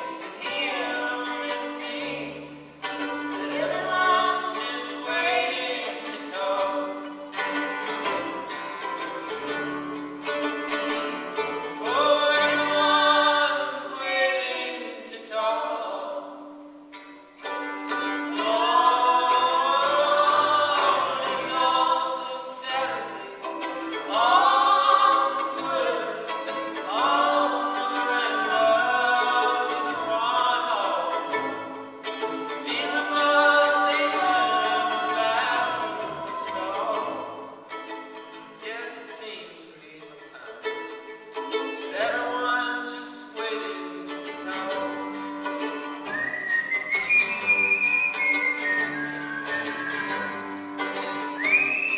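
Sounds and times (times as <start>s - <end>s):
man singing: 0.0s - 2.6s, 4.0s - 7.0s, 11.8s - 16.4s, 18.2s - 23.1s, 26.8s - 31.3s, 32.6s - 37.5s, 41.9s - 45.0s
bowed violin: 0.0s - 51.9s.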